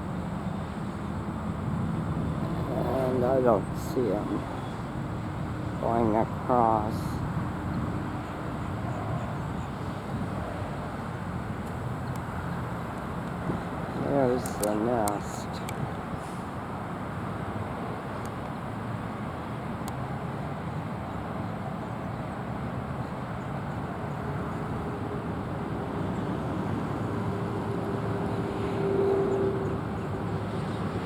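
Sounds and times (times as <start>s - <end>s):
traffic rumble: 0.0s - 18.8s.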